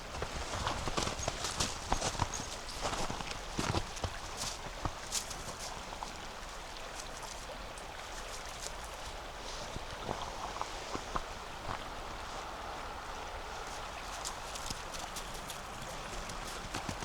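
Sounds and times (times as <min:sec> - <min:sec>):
footsteps crunching on snow: 0:00.0 - 0:05.8
river water rushing: 0:00.1 - 0:17.0.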